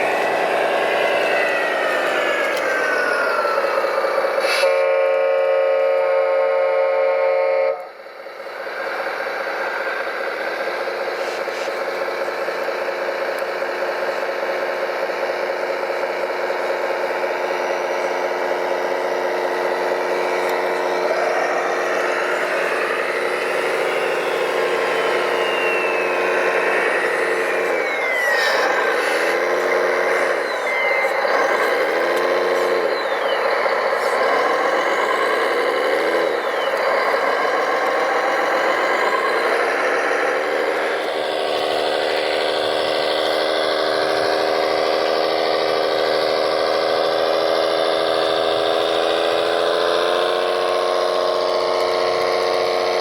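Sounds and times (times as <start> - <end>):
motor drone with gliding whines: 0.0 - 53.0
model truck horn: 4.4 - 8.0.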